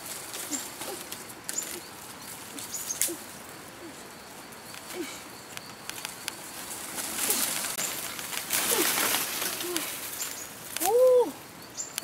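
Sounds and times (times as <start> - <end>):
birds calling low notes: 0.0 - 12.0
sharp crackles: 4.7 - 11.0.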